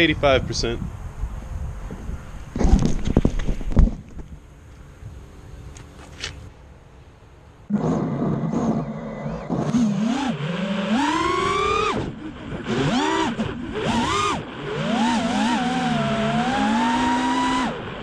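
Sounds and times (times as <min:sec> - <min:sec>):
quadcopter motors whining: 0:07.7 - 0:18.0.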